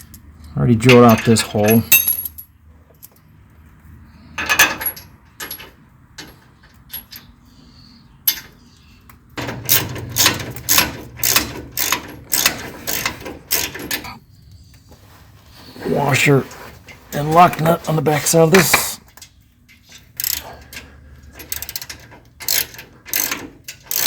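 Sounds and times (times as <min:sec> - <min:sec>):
ratchet wrench clicking: 0:09.6 - 0:13.8, 0:19.9 - 0:20.8, 0:21.4 - 0:24.0
metallic clicks and clinks: 0:19.1 - 0:24.0.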